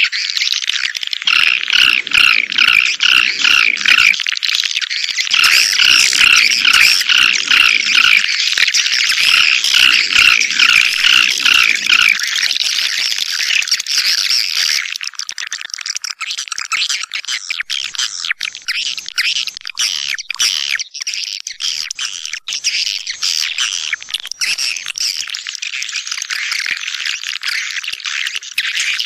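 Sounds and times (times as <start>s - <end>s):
swiftlets twittering: 1.1s - 4.3s, 5.1s - 13.6s.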